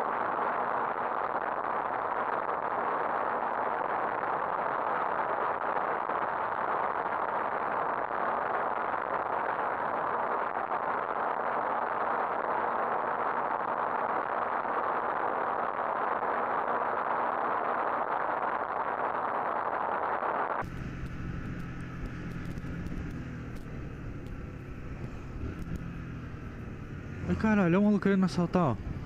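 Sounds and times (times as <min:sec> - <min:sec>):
motorcycle road noise: 0:00.0 - 0:29.0
rushing wind: 0:00.0 - 0:29.0
motorcycle engine humming: 0:20.6 - 0:29.0.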